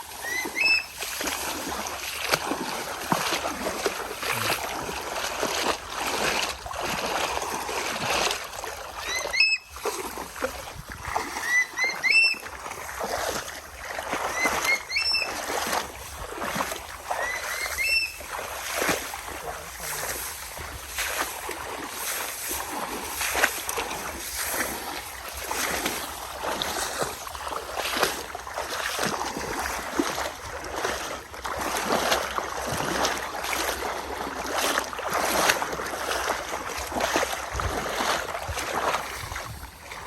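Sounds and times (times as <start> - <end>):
bird whistled calls: 0.2 - 1.0, 9.0 - 9.7, 11.4 - 12.5, 14.3 - 15.5, 17.2 - 18.3.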